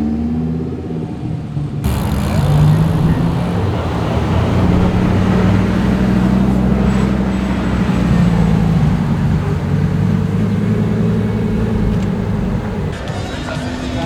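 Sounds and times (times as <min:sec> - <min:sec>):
car engine running at low revs: 0:01.8 - 0:13.0.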